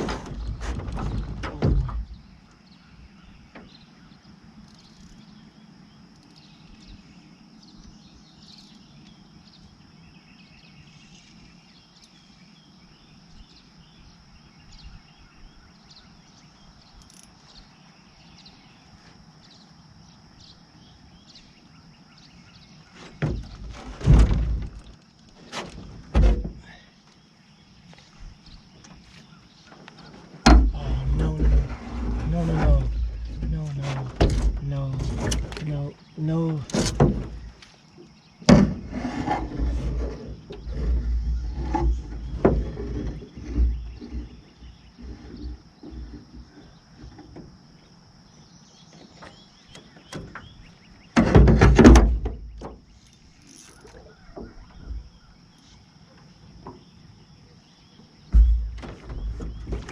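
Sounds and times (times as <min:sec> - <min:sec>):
low thumps and rustling: 0:00.0 - 0:04.1, 0:22.4 - 0:59.9.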